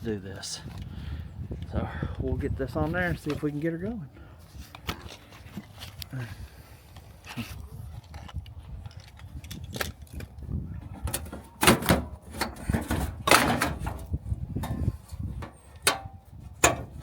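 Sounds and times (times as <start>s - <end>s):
metal parts knocking and clattering: 10.9s - 17.0s.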